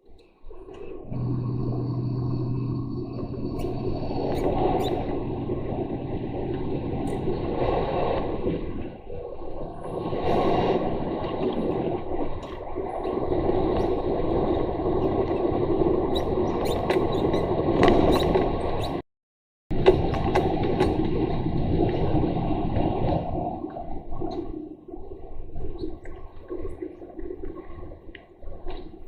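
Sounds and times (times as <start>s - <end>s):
small squeaks and clicks: 3.5s - 5.4s, 7.0s - 7.3s, 16.1s - 19.0s, 25.7s - 26.2s.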